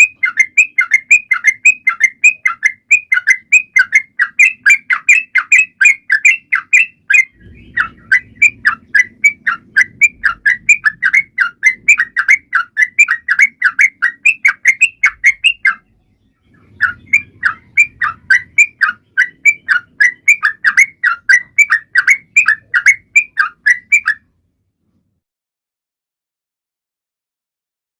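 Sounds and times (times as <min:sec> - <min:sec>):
bird chirping rapidly: 0:00.0 - 0:24.3.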